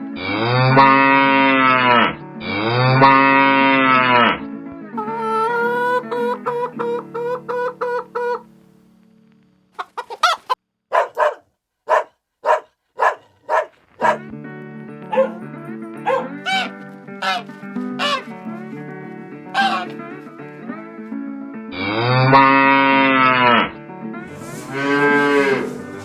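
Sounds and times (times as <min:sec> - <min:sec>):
chickens clucking: 0:05.0 - 0:08.4, 0:09.8 - 0:14.2, 0:15.1 - 0:15.4, 0:16.0 - 0:17.4
background music: 0:10.9 - 0:14.3, 0:15.0 - 0:18.5.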